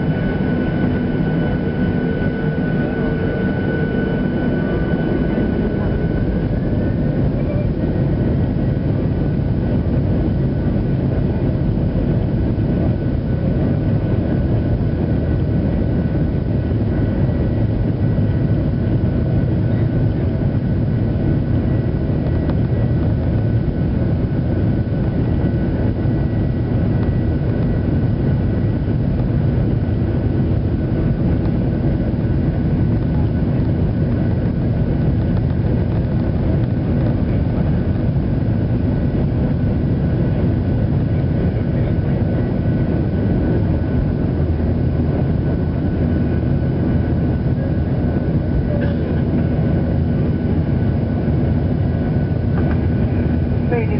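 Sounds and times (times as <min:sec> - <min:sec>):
faint high whine: 0:00.0 - 0:08.8
jet cabin engine rumble: 0:00.0 - 0:53.9.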